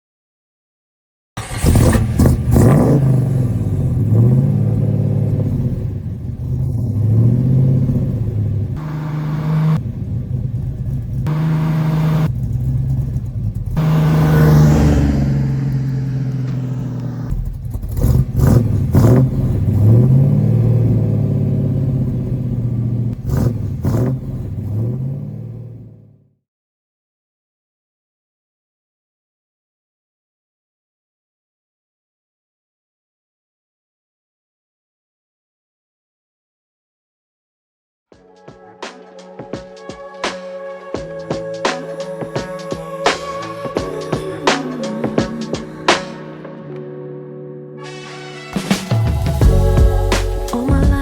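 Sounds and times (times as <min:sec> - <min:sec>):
exhaust cracks: 0:01.4 - 0:26.2, 0:48.6 - 0:51.0
car engine revving: 0:01.4 - 0:26.3, 0:48.4 - 0:51.0.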